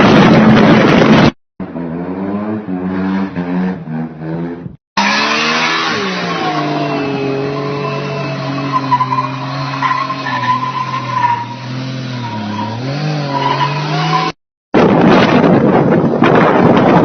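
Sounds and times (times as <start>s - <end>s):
wind buffeting microphone: 14.8s - 17.0s.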